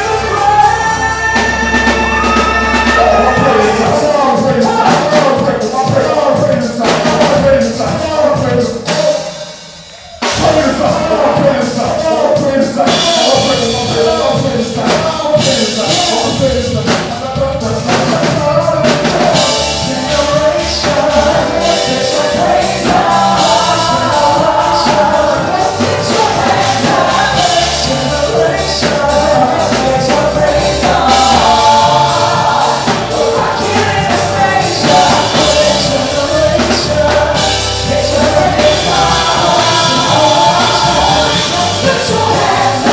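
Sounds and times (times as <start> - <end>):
drum kit: 0.0 - 42.9
person singing: 0.0 - 42.9.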